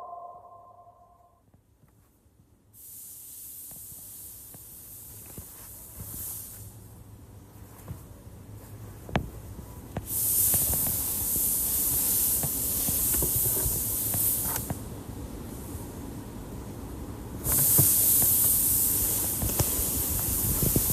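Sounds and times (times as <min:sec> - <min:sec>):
air hissing from a nozzle: 0:02.7 - 0:06.8, 0:10.0 - 0:14.8, 0:17.4 - 0:20.9.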